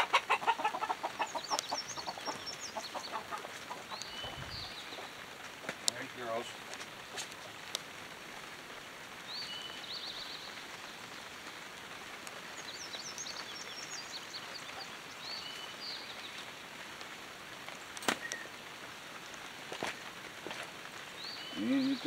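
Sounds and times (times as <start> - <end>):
bird chirping: 0.0 - 5.3, 21.2 - 22.0
light rain hissing: 0.0 - 22.0.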